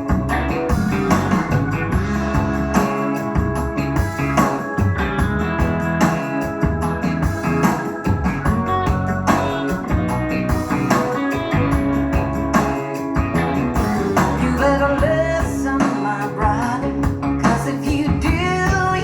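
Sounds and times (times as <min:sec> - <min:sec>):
blues-rock song with band: 0:00.0 - 0:19.0
person singing: 0:14.2 - 0:19.0.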